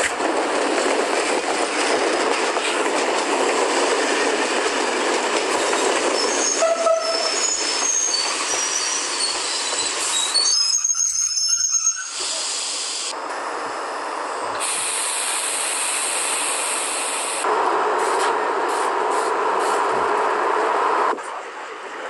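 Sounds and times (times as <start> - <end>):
train wheel squeal: 5.6 - 12.9
train noise hissing rush: 11.8 - 22.0.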